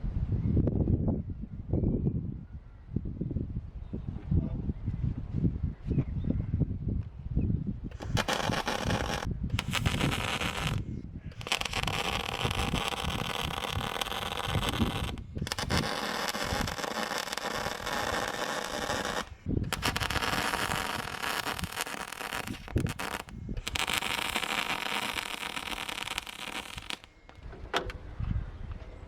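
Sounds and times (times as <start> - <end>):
welding arc crackling: 7.9 - 27.4.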